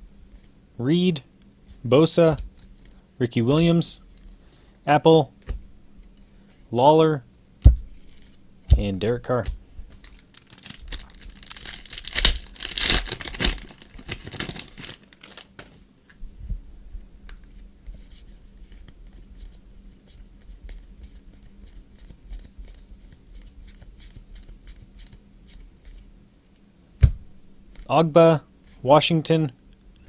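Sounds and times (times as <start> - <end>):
foil wrapper tearing and crinkling: 10.0 - 15.7.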